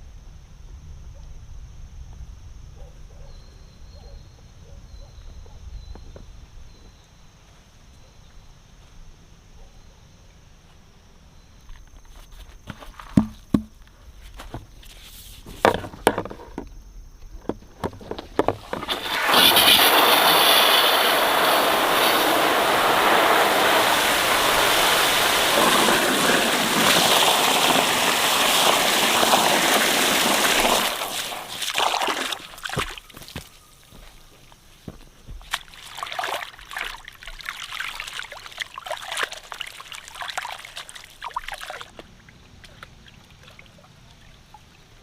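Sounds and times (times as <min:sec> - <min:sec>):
rush of running water: 0:18.6 - 0:33.4, 0:35.5 - 0:42.0.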